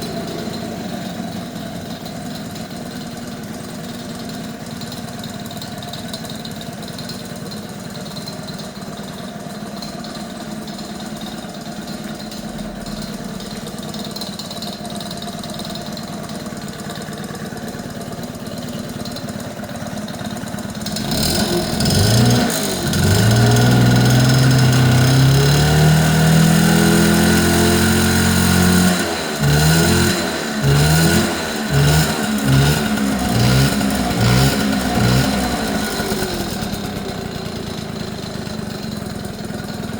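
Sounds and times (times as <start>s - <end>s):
scooter engine idling and revving: 0.0s - 39.9s.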